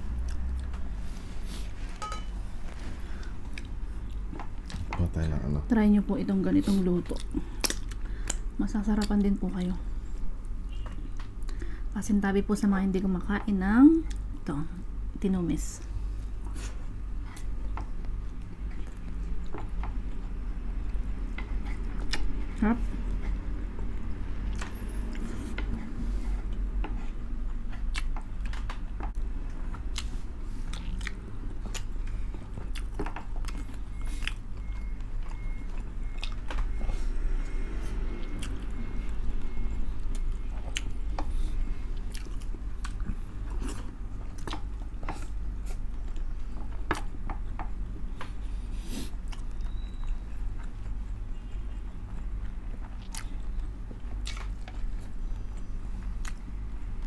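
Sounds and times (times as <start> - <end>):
steady low hum: 0.0 - 57.0
chewing and lip-smacking: 0.1 - 0.8, 3.1 - 5.3, 7.0 - 9.5, 17.1 - 36.8, 37.9 - 48.4, 49.1 - 57.0.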